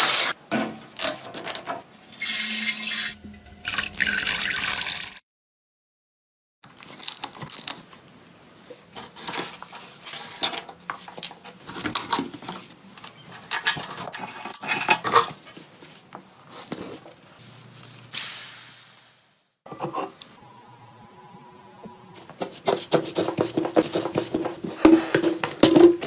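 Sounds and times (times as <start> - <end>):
spray hiss: 17.4 - 19.5.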